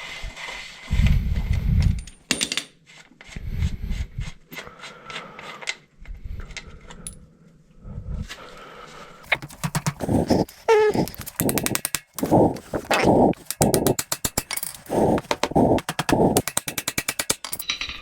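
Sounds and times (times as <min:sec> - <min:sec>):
sharp clicks: 0:09.3 - 0:17.6
metal hand tools clinking: 0:10.5 - 0:18.0.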